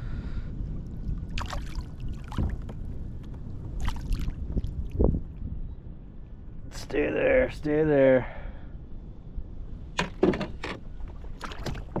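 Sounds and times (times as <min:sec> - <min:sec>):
water splashing: 0:10.0 - 0:12.0.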